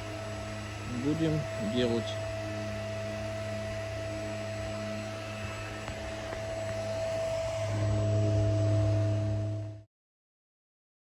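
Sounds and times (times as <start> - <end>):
low hum of held tones: 0.0 - 9.9.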